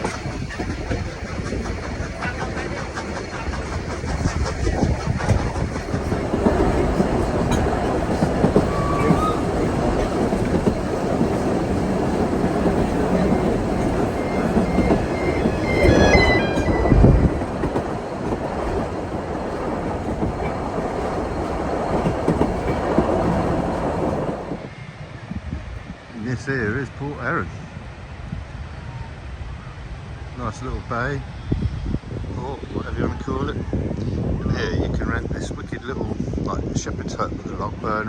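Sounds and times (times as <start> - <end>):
train wheels clattering over joints: 0.1 - 24.7
high wheel squeals: 5.9 - 24.7.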